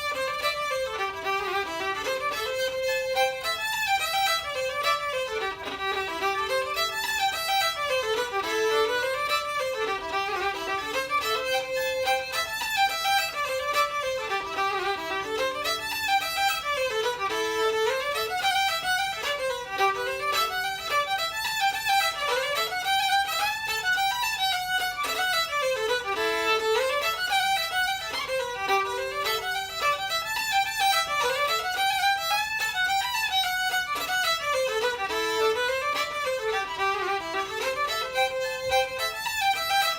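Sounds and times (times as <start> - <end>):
fiddle: 0.0 - 39.9.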